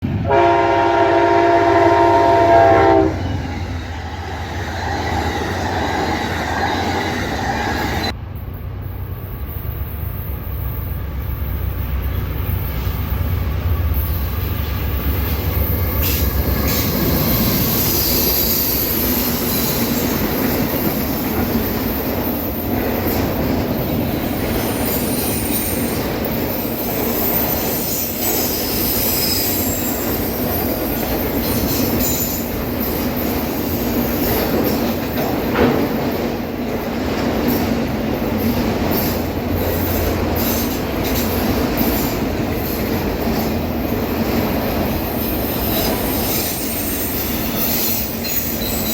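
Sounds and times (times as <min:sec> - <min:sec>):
train wheels rumbling on rail: 0:00.0 - 0:48.9
high-pitched wheel squeal: 0:03.0 - 0:08.1.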